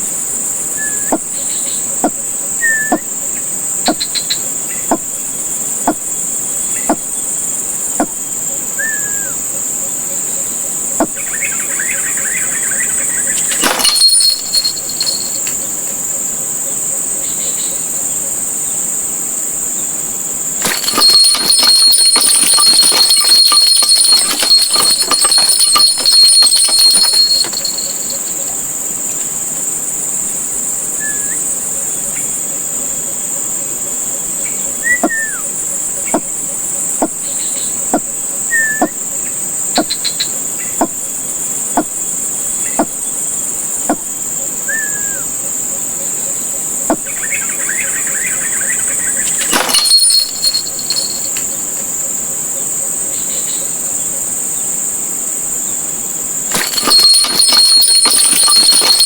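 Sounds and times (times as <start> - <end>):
insects chorus: 0.0 - 24.6.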